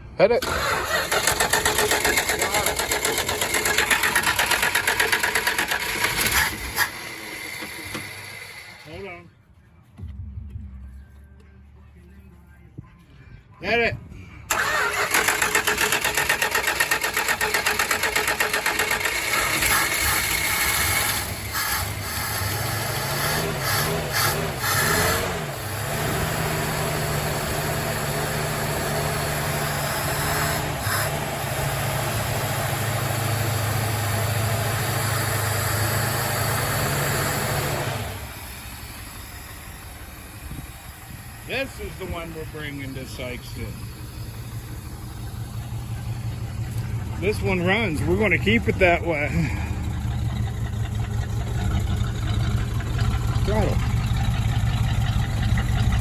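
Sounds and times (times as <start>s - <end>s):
car engine starting and revving: 0.3s - 8.7s, 14.5s - 56.0s
car engine idling: 0.4s - 9.3s, 14.1s - 24.8s, 30.8s - 56.0s.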